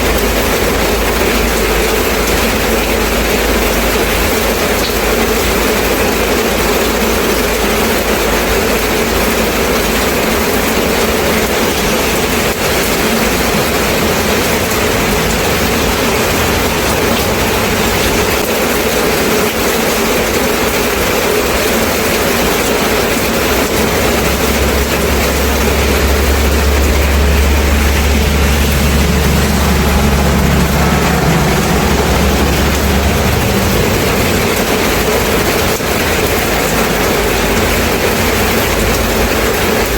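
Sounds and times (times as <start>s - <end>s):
steady rain: 0.0s - 39.9s
low steady rumble: 9.1s - 18.9s, 22.0s - 39.9s.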